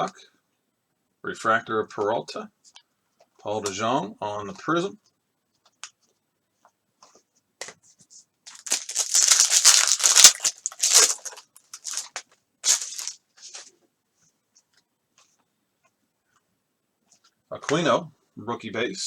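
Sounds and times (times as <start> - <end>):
wrapper being torn open: 8.5 - 13.2
wrapper crinkling: 8.5 - 13.7.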